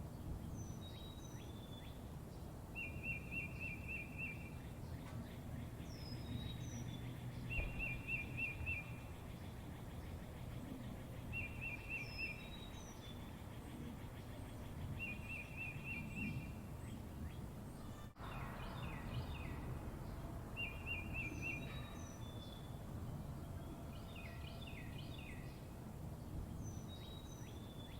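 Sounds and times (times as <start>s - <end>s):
low outdoor hum: 0.0s - 27.9s.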